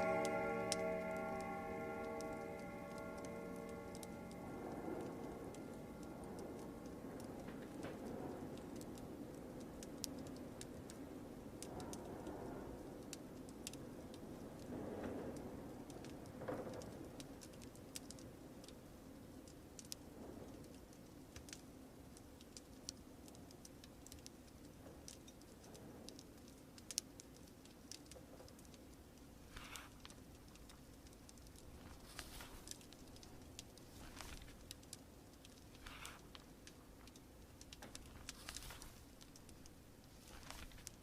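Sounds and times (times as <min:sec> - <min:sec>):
log fire crackling: 0:00.0 - 0:41.0
paper rustling: 0:38.1 - 0:39.0, 0:40.2 - 0:40.9.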